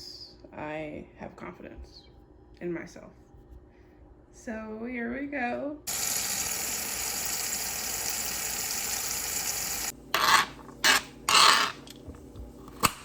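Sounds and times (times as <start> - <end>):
kitchen tap running: 5.9 - 9.9.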